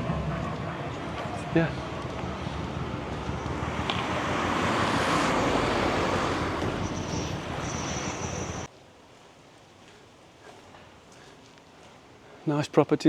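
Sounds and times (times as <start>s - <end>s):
vehicle passing by: 0.0s - 8.7s.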